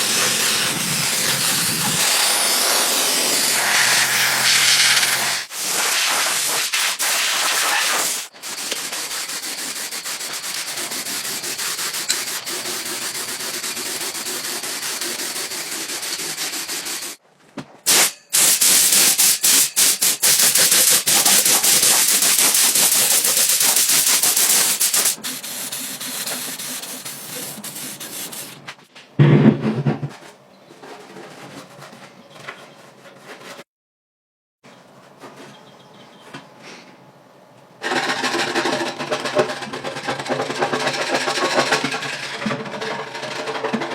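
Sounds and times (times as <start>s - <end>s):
rasping hiss of sanding: 0.0s - 17.2s, 17.9s - 28.7s.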